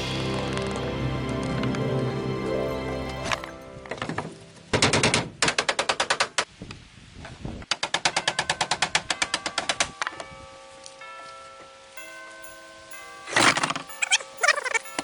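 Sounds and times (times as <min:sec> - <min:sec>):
soft background music: 0:00.0 - 0:05.4.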